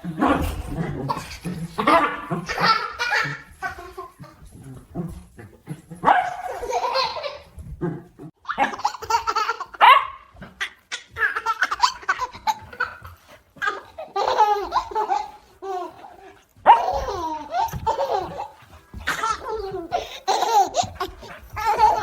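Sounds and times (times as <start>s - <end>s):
baby laughing: 1.0s - 4.4s, 6.3s - 7.7s, 8.5s - 9.8s, 10.6s - 22.0s
puppy barking: 6.0s - 6.7s, 9.8s - 10.3s, 16.7s - 17.1s.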